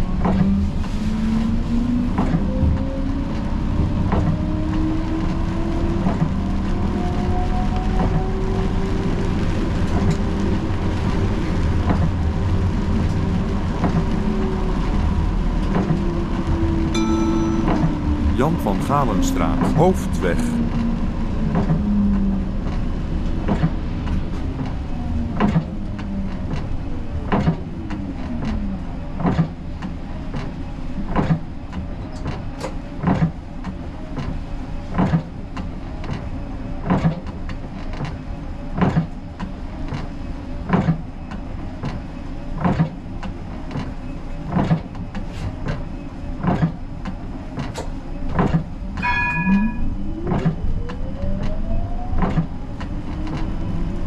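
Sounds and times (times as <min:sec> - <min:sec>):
short chime: 0:17.0 - 0:19.8, 0:49.0 - 0:50.0.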